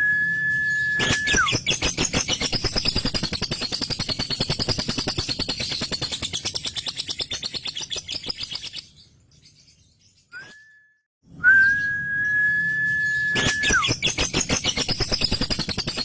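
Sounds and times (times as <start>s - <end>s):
bird whistling: 0.0s - 4.7s, 10.3s - 16.0s.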